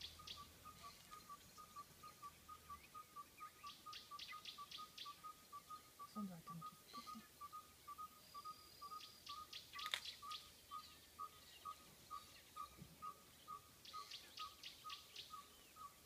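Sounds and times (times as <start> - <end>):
faint birdsong: 0.0 - 16.0
higher bird chirps: 0.0 - 16.0
sharp click: 9.8 - 10.2.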